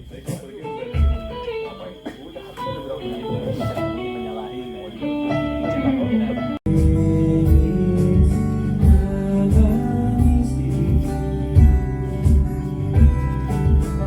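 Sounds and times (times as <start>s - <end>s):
plucked guitar: 0.0s - 14.0s
kick drum beat: 0.9s - 1.6s, 6.7s - 14.0s
bass notes: 5.1s - 14.0s.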